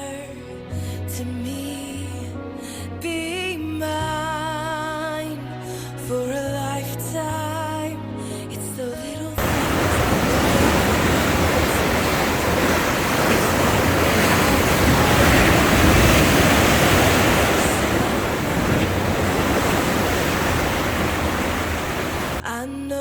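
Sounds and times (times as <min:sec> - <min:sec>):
sea surf washing in: 0:09.4 - 0:22.4.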